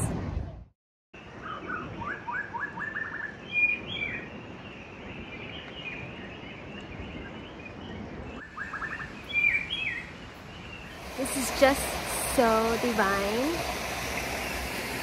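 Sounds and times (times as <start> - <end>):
birds chirping and calling: 1.3 - 11.1.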